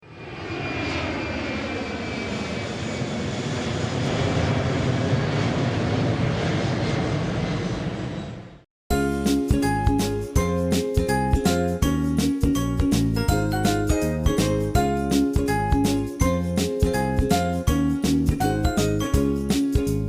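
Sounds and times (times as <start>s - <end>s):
airplane engine rushing: 0.0s - 20.0s.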